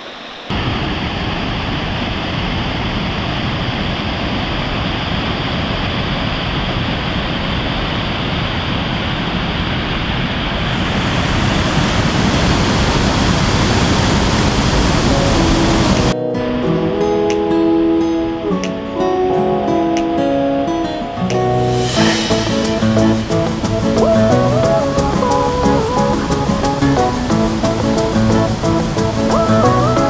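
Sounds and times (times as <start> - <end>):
fast-flowing water rushing: 10.7 - 16.2, 21.7 - 30.0.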